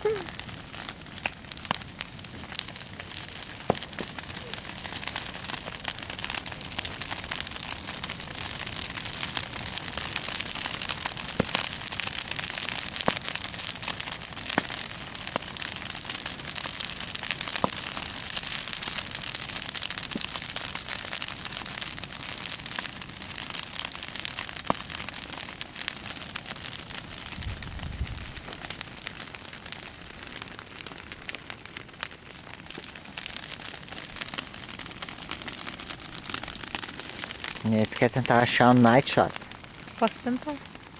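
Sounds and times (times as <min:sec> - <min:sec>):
bonfire crackling and hissing: 0:00.0 - 0:40.9.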